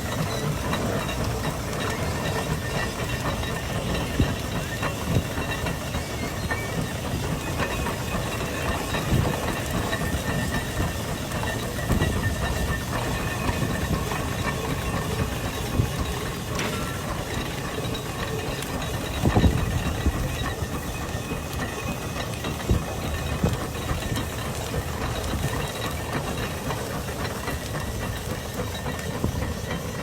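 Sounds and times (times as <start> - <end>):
steam engine knocking: 0.0 - 30.0
steam hissing: 0.0 - 30.0.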